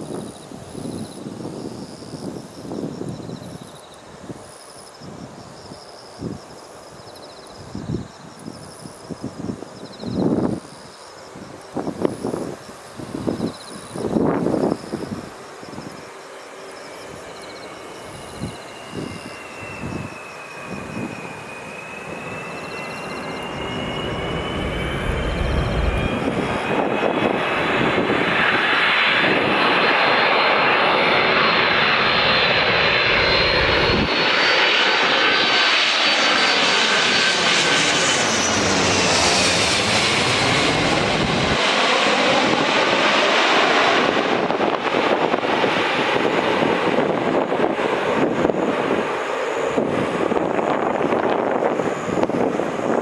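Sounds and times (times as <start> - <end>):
jet engines whining: 7.6 - 53.0.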